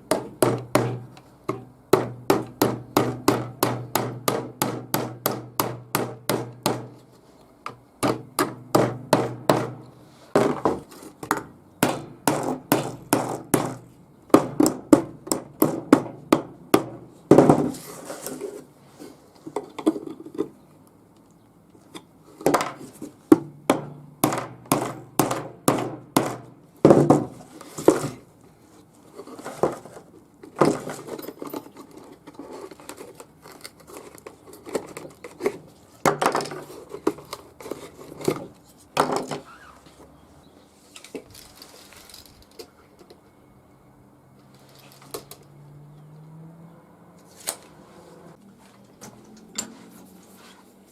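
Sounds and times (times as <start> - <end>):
hammer knocking on wood: 0.1 - 6.9, 8.0 - 9.8, 23.4 - 27.3.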